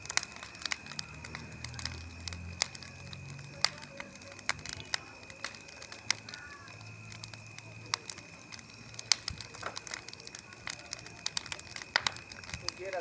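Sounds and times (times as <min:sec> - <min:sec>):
bonfire crackling and popping: 0:00.0 - 0:13.0.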